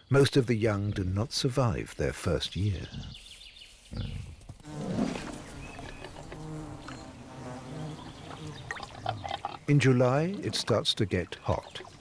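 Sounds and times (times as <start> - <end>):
honey bees buzzing: 4.6 - 12.0.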